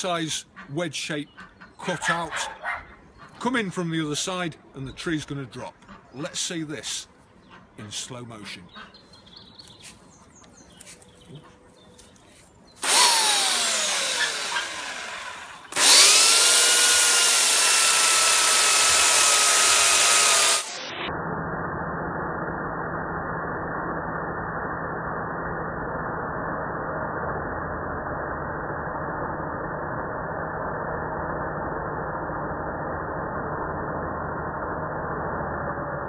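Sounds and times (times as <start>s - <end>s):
chainsaw revving: 12.8s - 20.9s
dull low slowed drone: 20.9s - 36.0s.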